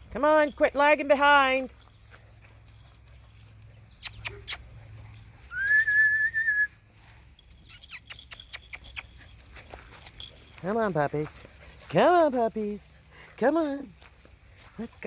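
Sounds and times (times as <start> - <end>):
whistled note: 5.5 - 6.7.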